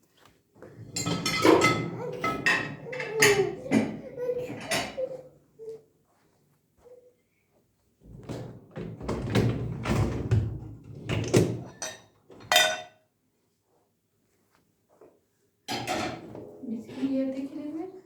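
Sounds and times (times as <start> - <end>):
dishes knocking and thudding: 0.9 - 5.2
ringing clink of dishes: 12.5 - 13.0.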